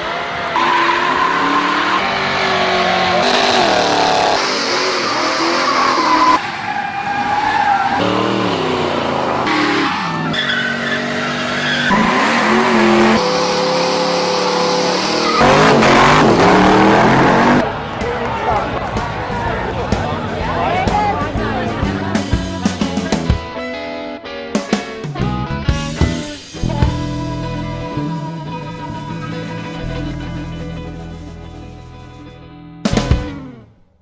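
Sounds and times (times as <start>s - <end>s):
engines revving: 0.0s - 23.3s
tyres squealing: 9.5s - 17.5s.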